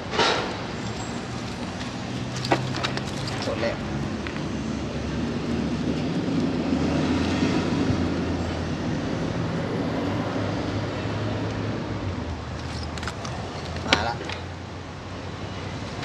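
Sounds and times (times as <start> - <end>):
train passing: 0.0 - 12.6.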